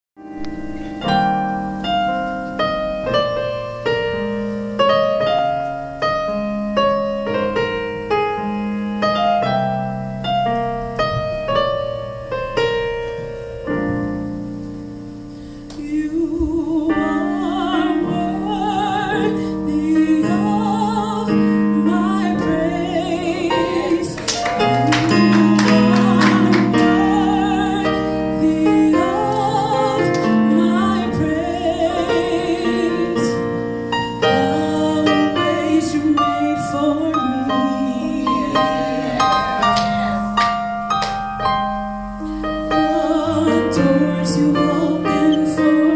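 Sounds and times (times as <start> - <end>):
piano chords: 0.2 - 45.9
person singing with vibrato: 15.8 - 40.7, 42.4 - 45.9.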